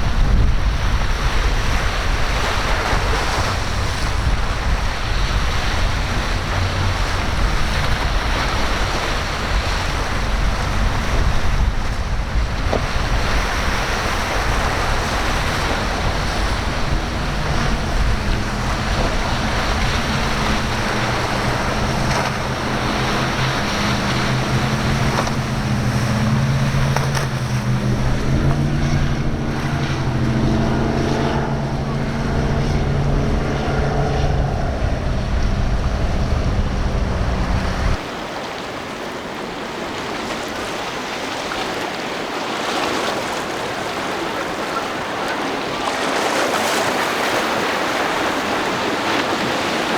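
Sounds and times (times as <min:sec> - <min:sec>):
wind buffeting microphone: 0:00.0 - 0:38.2
boat engine drone: 0:00.0 - 0:49.9
waves breaking: 0:00.0 - 0:49.9.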